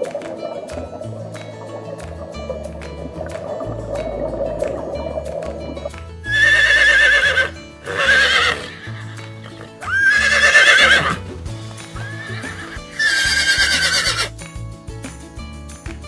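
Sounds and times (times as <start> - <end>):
background music: 0.0 - 16.0
horse whinnying: 6.3 - 11.2, 12.0 - 14.3.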